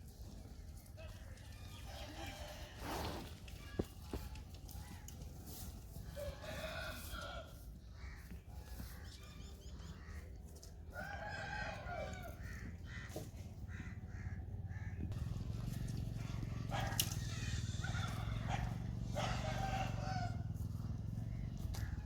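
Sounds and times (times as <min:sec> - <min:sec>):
rooster crowing: 0:17.2 - 0:20.5.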